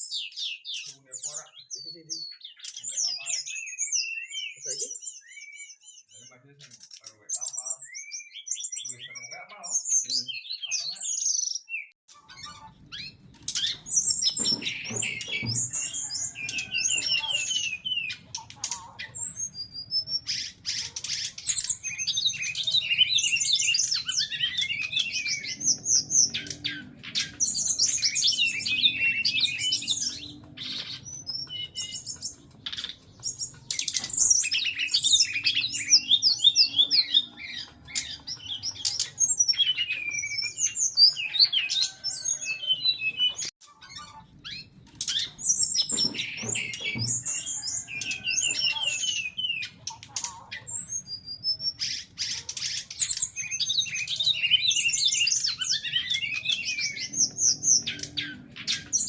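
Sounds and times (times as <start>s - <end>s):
bird singing rapid chirps: 0.0s - 59.0s.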